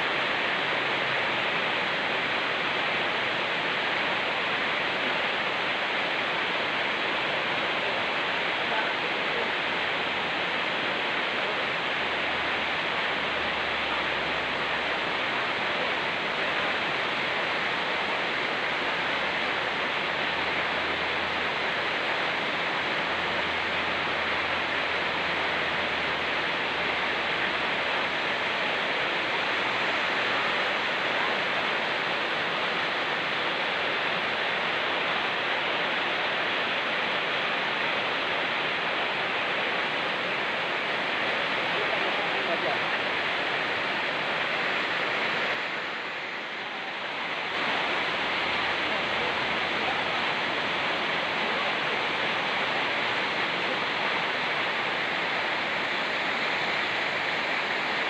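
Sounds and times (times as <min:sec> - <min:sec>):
fast-flowing stream rushing: 0:00.0 - 0:58.0
rain falling: 0:00.0 - 0:58.0.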